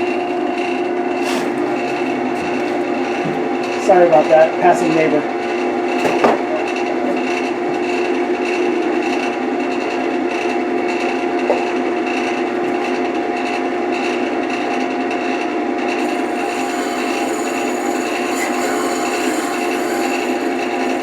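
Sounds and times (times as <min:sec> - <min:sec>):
tool scraping spinning wood: 0:16.0 - 0:21.0
wood lathe humming: 0:16.0 - 0:21.0.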